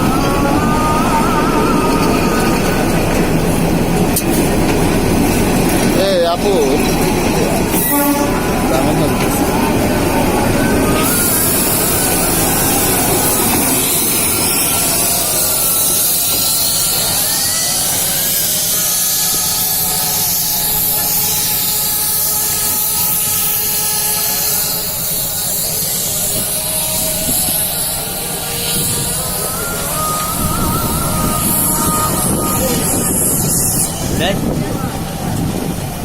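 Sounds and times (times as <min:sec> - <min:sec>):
train rumbling: 0:00.0 - 0:36.0
loud hiss: 0:07.6 - 0:36.0.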